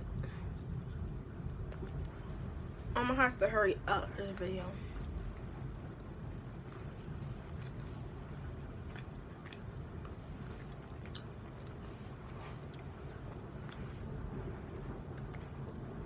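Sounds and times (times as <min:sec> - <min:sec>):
steady low rumble: 0:00.0 - 0:16.0
person chewing licorice: 0:04.8 - 0:16.0
wet mouth clicks: 0:06.7 - 0:08.1, 0:08.8 - 0:13.9.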